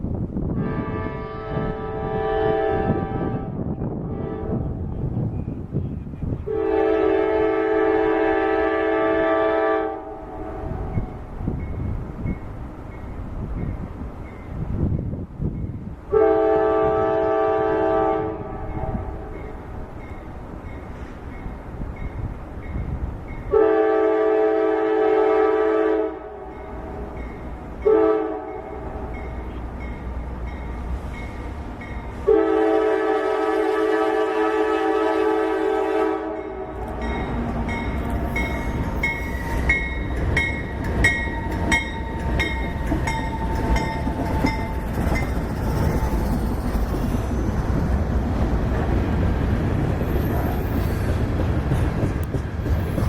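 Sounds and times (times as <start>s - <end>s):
passing train rumble: 0.0s - 53.0s
locomotive air horn blast: 0.5s - 4.9s, 6.5s - 11.1s, 16.1s - 19.4s, 23.5s - 27.0s, 27.8s - 29.1s, 32.2s - 37.5s.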